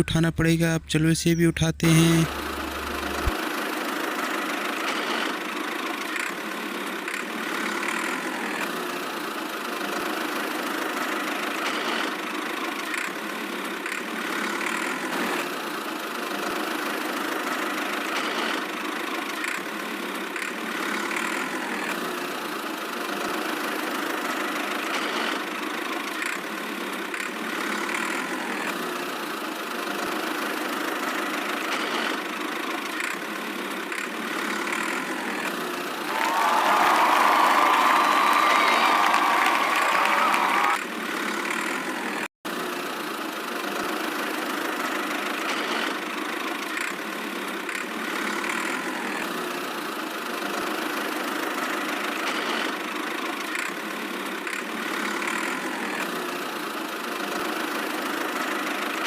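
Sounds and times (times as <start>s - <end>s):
tractor engine idling: 0.0s - 4.6s.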